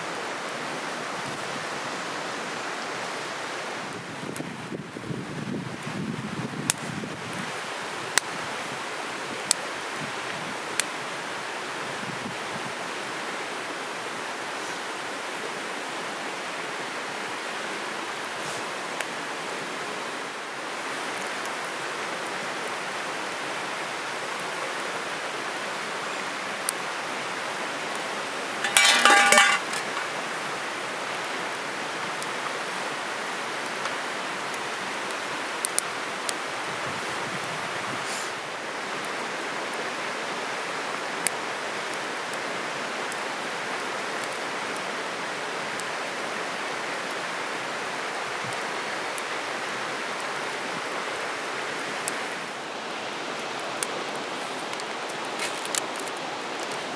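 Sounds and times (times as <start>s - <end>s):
stream rushing: 0.0s - 4.0s, 7.4s - 56.9s
clatter with ringing tones: 28.6s - 30.1s.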